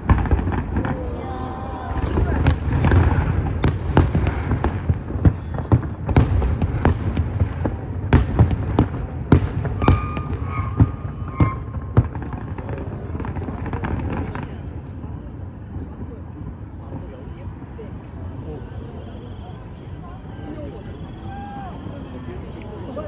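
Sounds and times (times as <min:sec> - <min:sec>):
fireworks bursting: 0:00.0 - 0:14.5
low rumble of fireworks barrage: 0:00.0 - 0:23.0.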